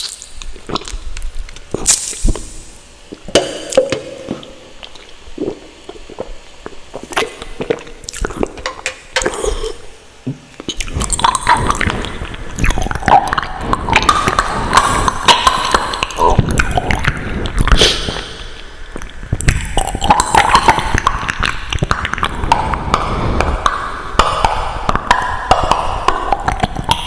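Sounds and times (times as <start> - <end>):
wet chewing mouth sounds: 0.0 - 2.5, 3.1 - 8.6, 10.5 - 18.3.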